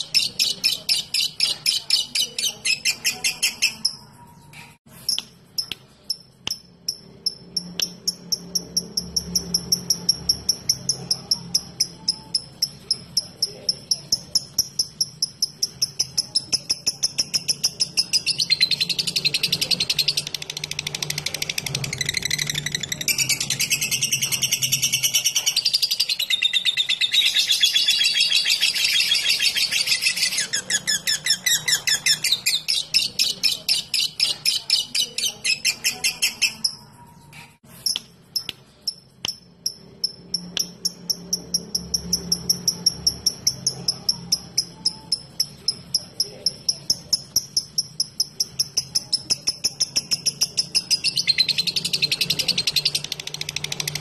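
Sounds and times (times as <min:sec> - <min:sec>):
lovebird chattering trill: 0:00.0 - 0:54.0
sharp high bird ticks: 0:05.0 - 0:26.3, 0:37.8 - 0:54.0.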